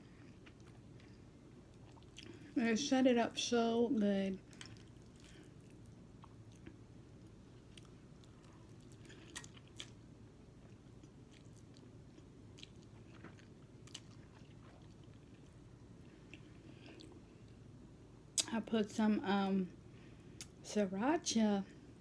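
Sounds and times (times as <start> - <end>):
low room hum: 0.0 - 22.0
chewing noodles: 4.5 - 6.8, 7.6 - 10.0, 10.6 - 17.2.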